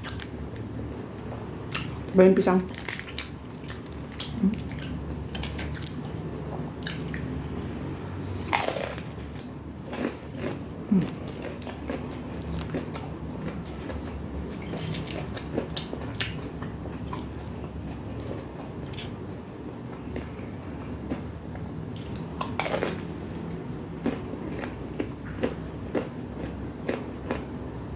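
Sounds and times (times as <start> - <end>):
wet chewing: 2.7 - 19.2
crunchy bites: 8.4 - 17.3, 22.0 - 23.4.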